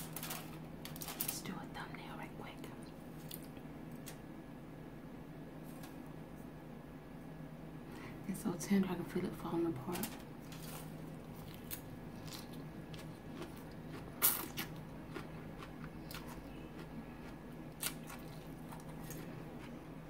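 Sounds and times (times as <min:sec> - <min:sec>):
steady low hum: 0:00.0 - 0:20.0
chewing crisp salad: 0:10.4 - 0:20.0.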